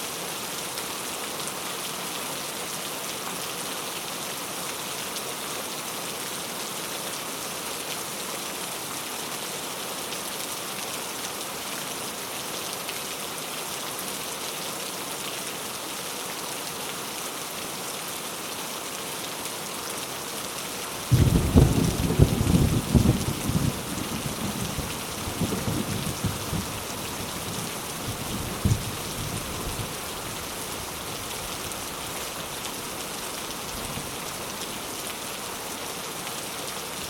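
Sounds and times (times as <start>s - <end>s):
heavy rain falling: 15.5s - 37.0s.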